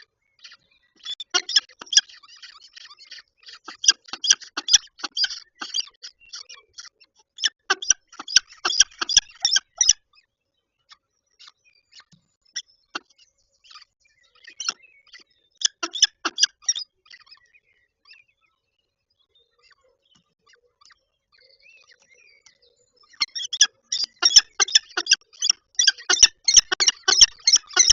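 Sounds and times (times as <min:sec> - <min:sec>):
falcons chipping and clicking: 0:01.0 - 0:02.2, 0:03.7 - 0:05.9, 0:07.7 - 0:10.0, 0:23.3 - 0:27.9.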